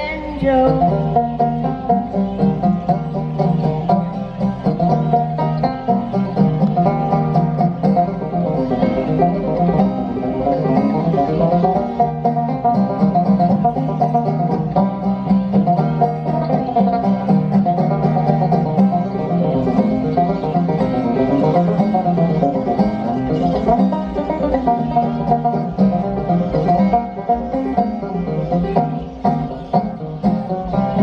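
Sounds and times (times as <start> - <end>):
banjos playing: 0.0 - 31.0.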